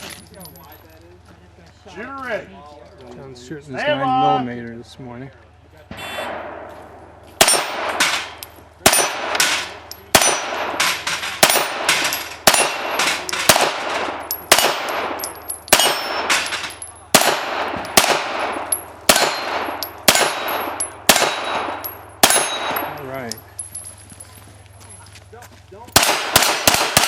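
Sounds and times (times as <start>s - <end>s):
pistol shots echoing: 6.2s - 23.0s, 26.0s - 27.0s.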